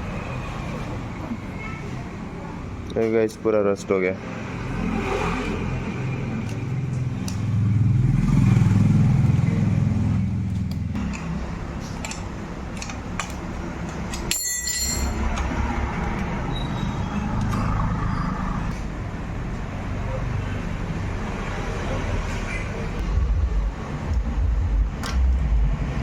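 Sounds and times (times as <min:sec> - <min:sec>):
vehicle engine rumbling: 0:04.4 - 0:26.0
sharp clicks and taps: 0:24.9 - 0:25.4.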